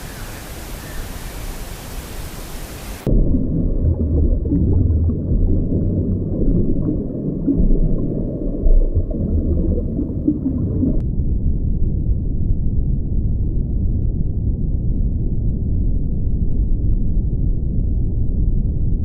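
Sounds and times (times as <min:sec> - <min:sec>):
low rumbling animal vocalisation: 0:03.1 - 0:11.0.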